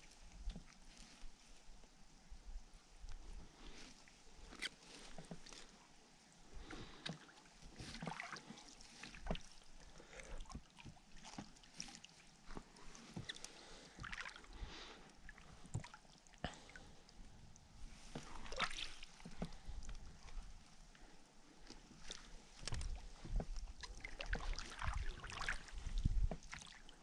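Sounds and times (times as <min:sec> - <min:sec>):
water splashing and dripping: 0:07.8 - 0:09.5, 0:13.0 - 0:14.7, 0:18.1 - 0:19.9, 0:23.8 - 0:26.9.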